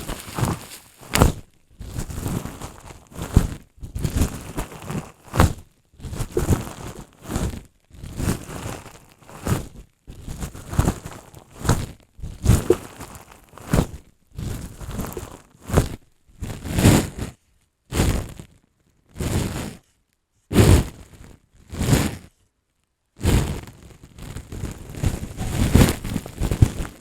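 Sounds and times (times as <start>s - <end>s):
bubble wrap crinkling: 0.0s - 1.4s, 24.6s - 27.0s.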